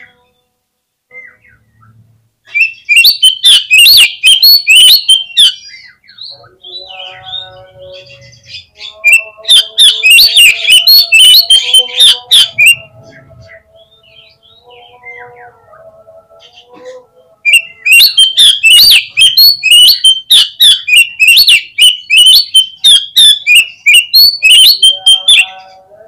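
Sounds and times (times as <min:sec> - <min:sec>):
bird chirps and whistles: 0:02.5 - 0:06.8, 0:08.5 - 0:12.9, 0:17.5 - 0:25.6.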